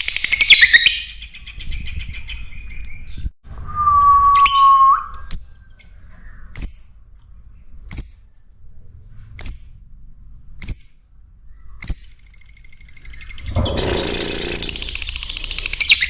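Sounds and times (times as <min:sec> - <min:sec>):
small bird chirping: 0:04.3 - 0:08.7, 0:09.4 - 0:09.9, 0:10.6 - 0:16.0.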